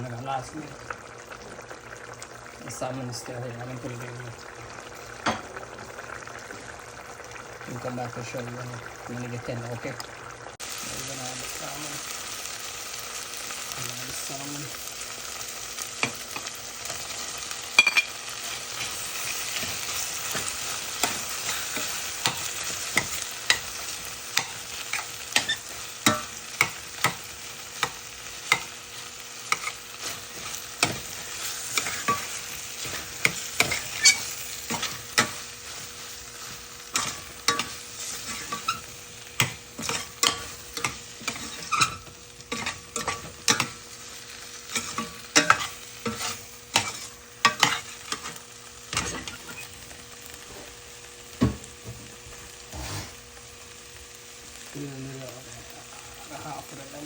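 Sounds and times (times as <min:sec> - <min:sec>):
fish sizzling in a pan: 0:00.0 - 0:57.0.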